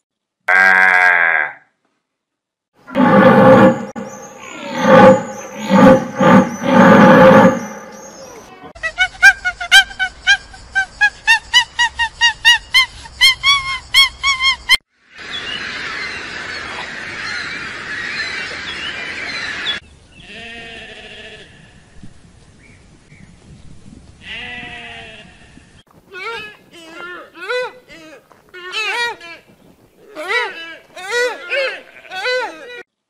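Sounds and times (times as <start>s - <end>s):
sheep bleating: 0.5s - 1.6s
chorus of birds calling: 2.9s - 8.7s, 15.2s - 19.8s
rapid honking calls: 2.9s - 8.7s.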